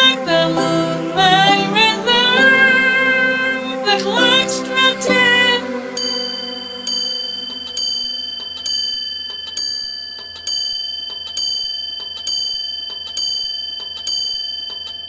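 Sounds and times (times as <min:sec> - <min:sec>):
clock chime bell strokes: 0:00.0 - 0:11.7.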